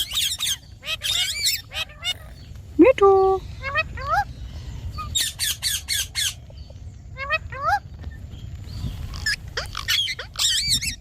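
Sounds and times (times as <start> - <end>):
parakeet squawking: 0.0 - 2.4, 3.6 - 4.3, 9.1 - 11.0.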